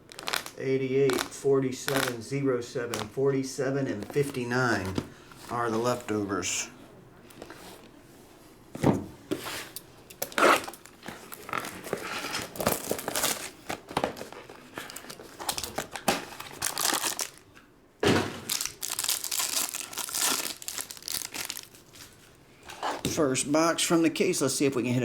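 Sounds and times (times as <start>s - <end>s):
plastic wrapping crinkling and tearing: 0.0s - 2.2s, 10.2s - 17.6s, 18.3s - 22.4s.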